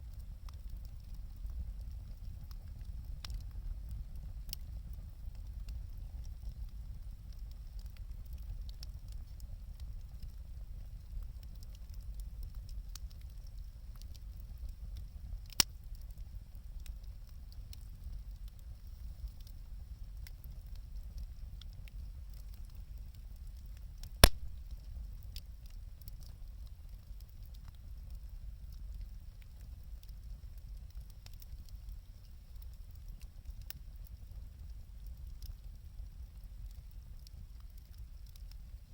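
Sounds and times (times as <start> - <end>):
wood fire crackling: 0.0 - 38.9
fire popping sharply: 24.1 - 24.9.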